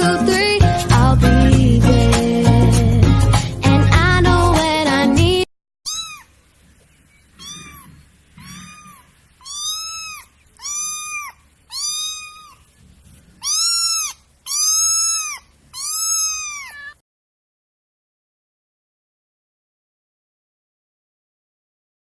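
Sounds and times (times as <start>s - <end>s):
cat meowing: 5.9s - 6.4s, 7.4s - 17.0s.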